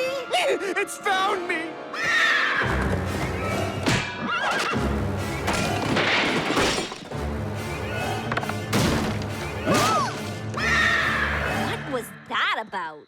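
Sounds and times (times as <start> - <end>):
dramatic cartoon music: 0.0 - 12.6
horse whinnying: 2.0 - 2.9, 4.0 - 4.8.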